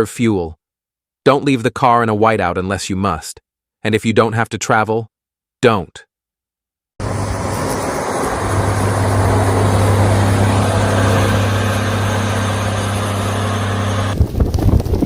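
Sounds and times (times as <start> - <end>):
vehicle engine running: 7.0 - 14.2.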